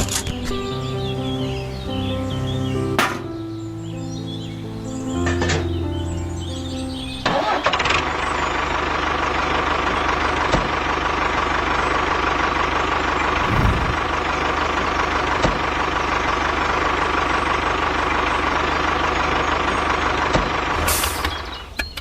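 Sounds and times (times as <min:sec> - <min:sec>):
small engine running: 0:07.2 - 0:21.7.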